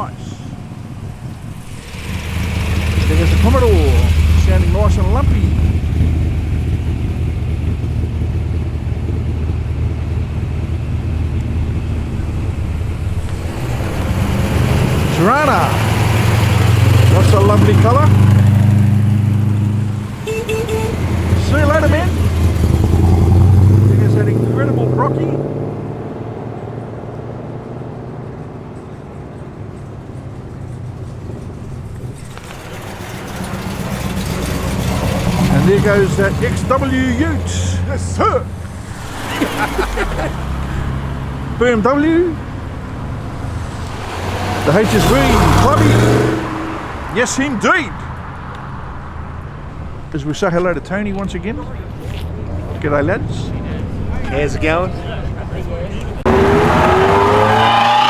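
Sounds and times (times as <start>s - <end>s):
car engine idling unevenly: 0.0s - 58.0s.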